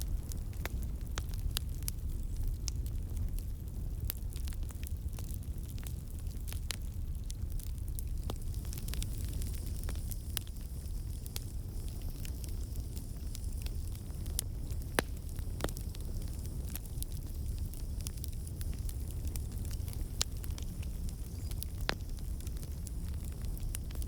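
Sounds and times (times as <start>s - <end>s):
fire crackling: 0.0s - 24.0s
low rumble of flames: 0.0s - 24.0s
sharp fire pops: 7.5s - 24.0s.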